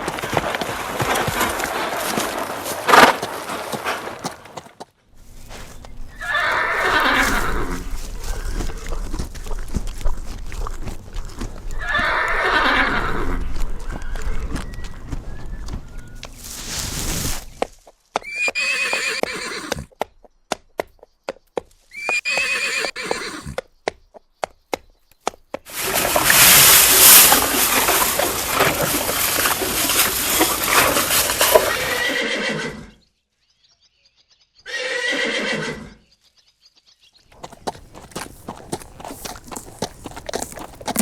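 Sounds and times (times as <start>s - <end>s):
horses whinnying: 0.0s - 4.8s, 6.1s - 9.3s, 11.6s - 16.3s, 18.2s - 19.9s, 21.9s - 23.6s, 25.7s - 33.0s, 34.7s - 36.0s, 37.4s - 41.0s
hooves clip-clopping: 0.0s - 16.7s, 17.3s - 32.1s, 37.3s - 41.0s.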